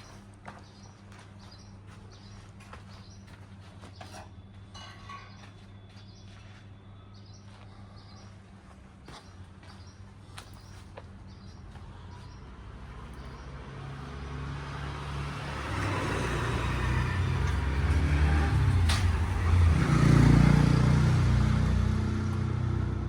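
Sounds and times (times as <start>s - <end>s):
vehicle engine approaching: 11.1s - 23.0s.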